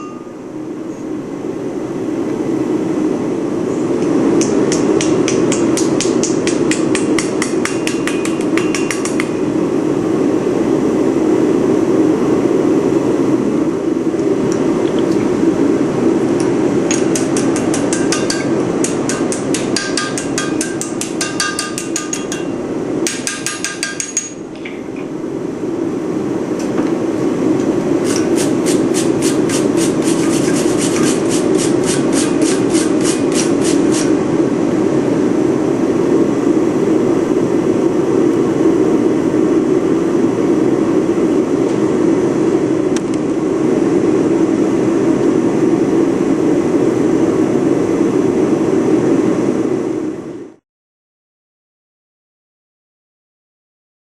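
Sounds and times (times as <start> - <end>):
hammer striking steel on anvil: 4.4 - 9.3, 16.9 - 24.4.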